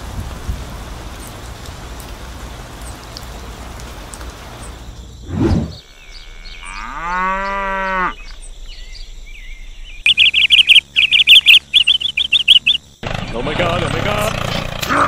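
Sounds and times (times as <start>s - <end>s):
birds chirping: 1.0s - 15.0s
low whoosh: 5.3s - 5.8s
cow mooing: 6.1s - 8.3s.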